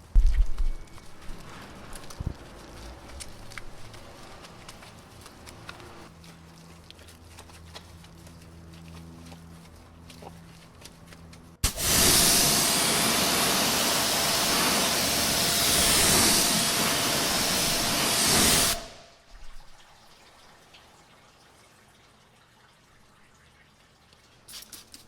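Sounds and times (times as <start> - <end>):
pressure washer spraying: 11.6 - 19.1.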